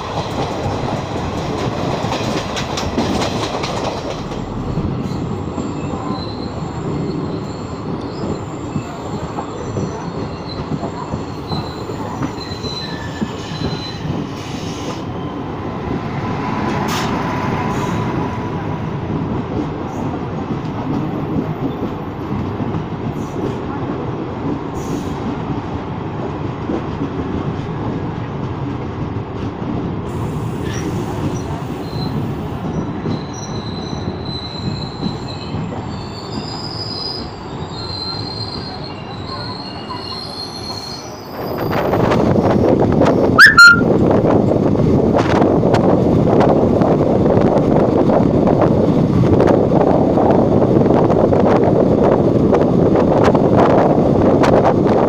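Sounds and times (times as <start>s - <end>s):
wind buffeting: 0.0s - 30.1s, 41.2s - 55.0s
train wheels rumbling on rail: 0.0s - 55.0s
wheels squealing: 43.3s - 43.9s.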